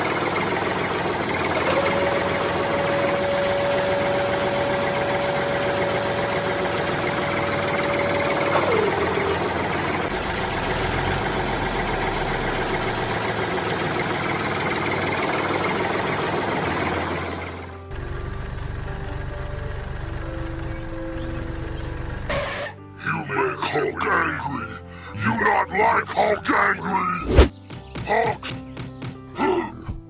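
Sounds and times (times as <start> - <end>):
rough engine running with whine: 0.0 - 22.9.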